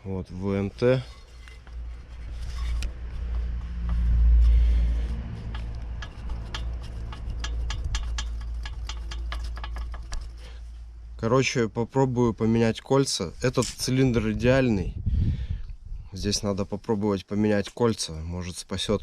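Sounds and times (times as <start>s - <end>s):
low rumble: 0.0s - 12.7s, 13.3s - 16.4s
piston clicking: 5.3s - 10.7s.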